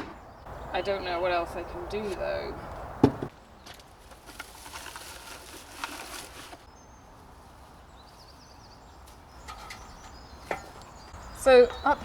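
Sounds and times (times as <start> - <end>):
handling and rustling: 3.6 - 8.2.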